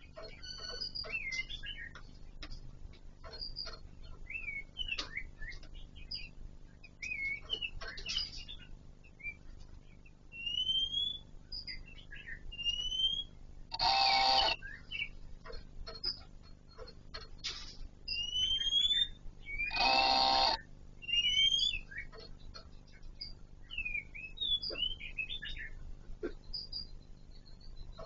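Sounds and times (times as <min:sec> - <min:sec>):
birds chirping and whistling: 0:00.0 - 0:02.6, 0:03.2 - 0:28.0
harsh buzzing: 0:13.7 - 0:14.6, 0:19.6 - 0:20.7.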